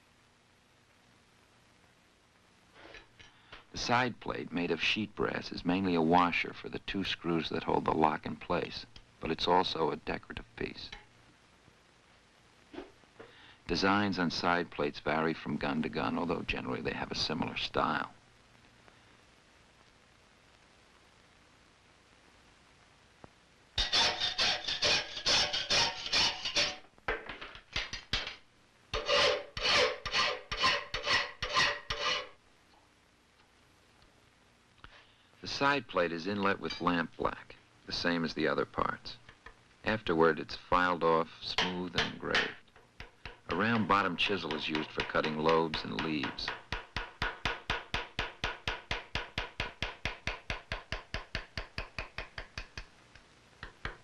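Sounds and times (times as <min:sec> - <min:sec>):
hand file on brass: 0:23.8 - 0:26.8, 0:29.0 - 0:32.4
hammer tapping chisel on brass: 0:41.5 - 0:52.9, 0:53.6 - 0:54.0.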